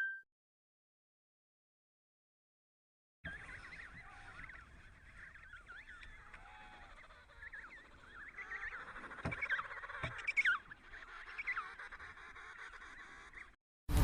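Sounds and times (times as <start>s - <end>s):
flock of birds calling: 3.3s - 14.0s.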